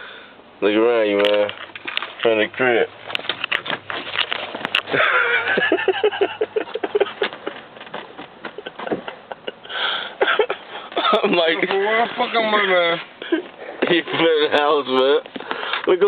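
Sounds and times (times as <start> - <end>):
clicks and rustling: 1.1 - 5.2, 6.6 - 9.3
sniffing and breathing: 9.6 - 11.0.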